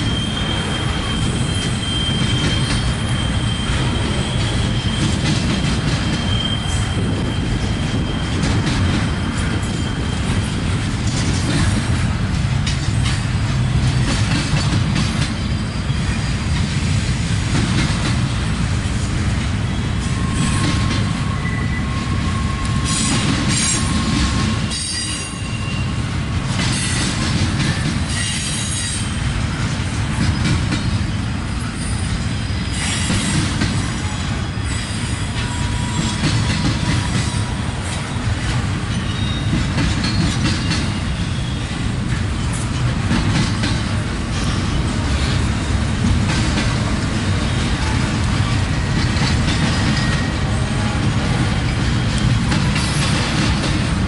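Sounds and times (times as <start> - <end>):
wheel squeals: 0.0 - 10.8, 15.2 - 16.6, 19.7 - 26.1, 30.2 - 41.8
train wheels rumbling on rails: 0.0 - 54.0.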